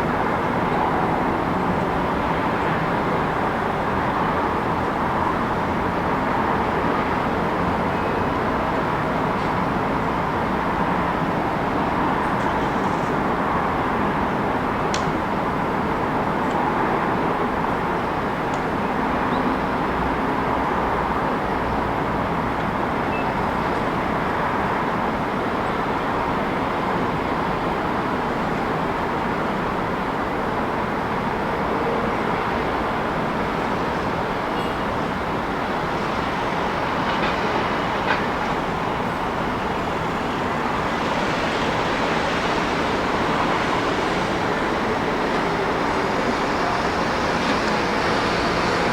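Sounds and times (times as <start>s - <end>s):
traffic rumble: 27.8s - 48.9s.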